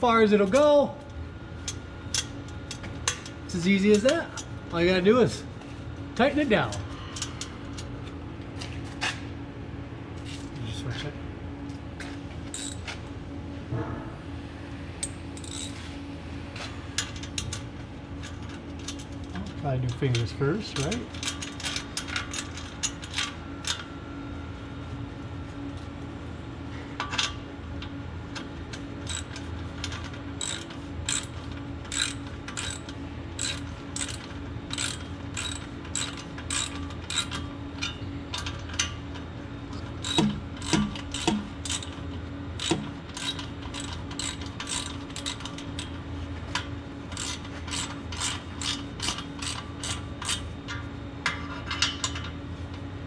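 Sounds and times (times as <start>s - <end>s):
steady low hum: 0.0s - 53.0s
ratchet clicking: 12.5s - 12.9s, 15.0s - 15.8s, 29.0s - 37.4s, 40.0s - 42.0s, 42.6s - 45.9s, 47.1s - 50.4s.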